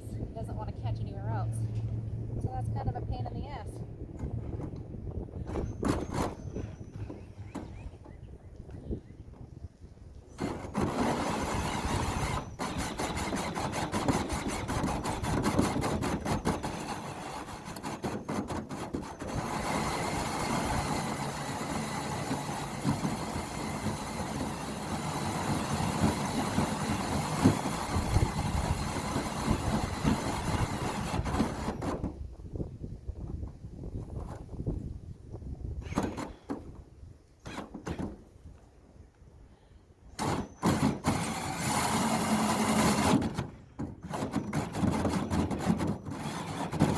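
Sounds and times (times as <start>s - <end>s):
cordless drill cutting metal: 10.4s - 31.9s, 40.2s - 43.3s, 44.0s - 46.9s.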